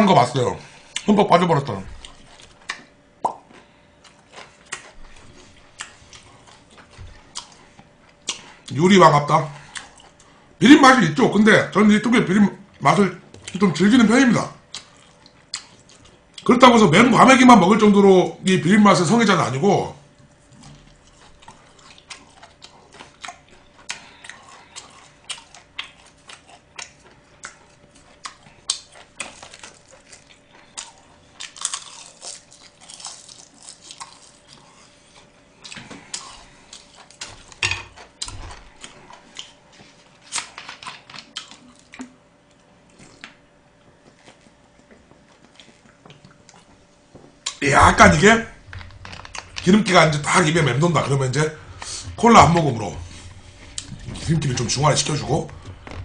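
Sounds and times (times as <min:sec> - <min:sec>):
chewing and mouth smacking: 0:02.0 - 0:08.8, 0:14.6 - 0:16.5, 0:20.2 - 0:47.6.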